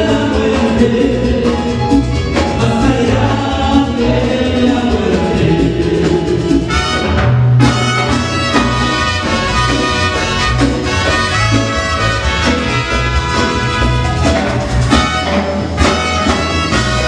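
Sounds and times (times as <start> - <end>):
live band playing: 0.0 - 17.0
voices singing together: 2.6 - 6.7.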